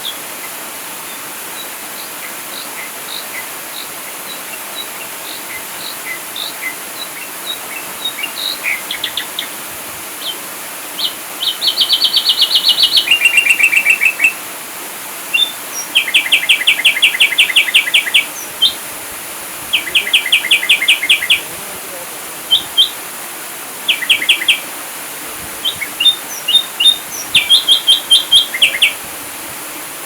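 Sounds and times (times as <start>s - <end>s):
steady background hiss: 0.0s - 30.0s
bird chirping and trilling: 1.1s - 9.6s, 11.0s - 14.4s, 15.3s - 18.8s, 19.7s - 21.7s, 22.4s - 23.0s, 23.9s - 24.7s, 25.6s - 29.0s.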